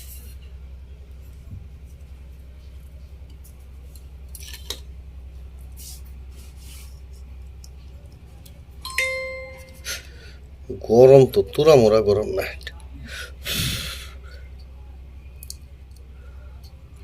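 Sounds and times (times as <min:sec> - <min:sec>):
steady low hum: 0:00.0 - 0:17.0
brief ringing tone: 0:08.9 - 0:10.1.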